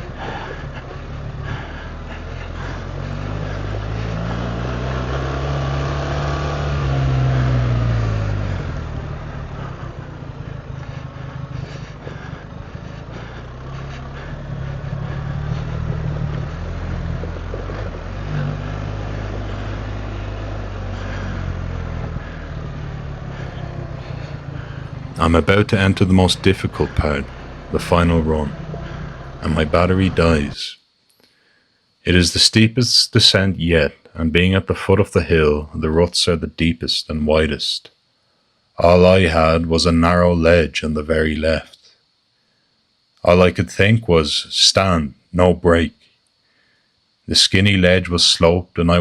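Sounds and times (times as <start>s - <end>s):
motorcycle engine revving: 0.0s - 30.6s.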